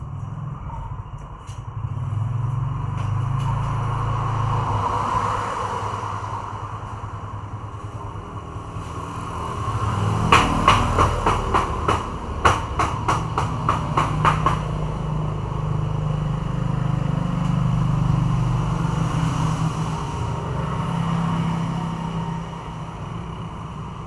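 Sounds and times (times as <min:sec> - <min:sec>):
sharp taps: 0:10.3 - 0:14.8.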